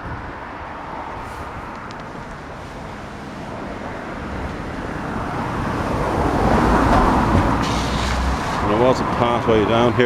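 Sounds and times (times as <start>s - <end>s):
vehicle passing: 2.6s - 10.0s.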